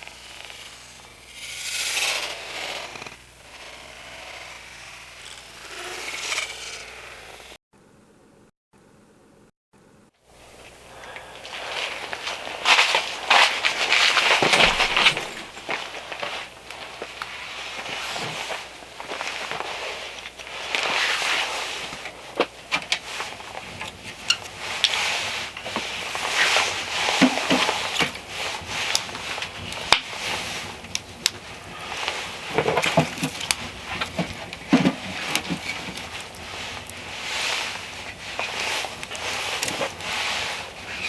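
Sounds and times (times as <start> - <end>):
snow shovel scraping snow: 0.0 - 7.6, 10.4 - 22.4, 23.0 - 41.0
dull thumps of dumped snow: 12.8 - 15.7.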